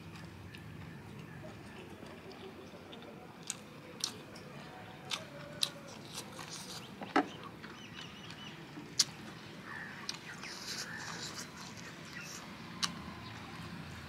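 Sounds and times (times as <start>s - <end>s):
person chewing: 2.3s - 4.2s, 5.0s - 6.9s, 10.0s - 13.0s
wet lip-smacking clicks: 10.0s - 13.0s.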